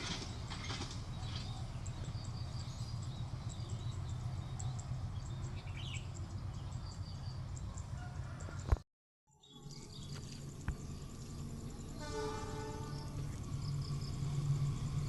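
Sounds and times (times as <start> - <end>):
small birds chirping: 1.0 - 7.9
insects chirping: 9.7 - 15.0.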